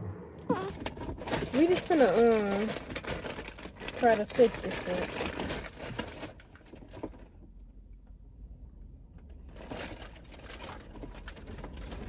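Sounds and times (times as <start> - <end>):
plastic packaging rustling: 0.5 - 7.3, 9.5 - 12.0.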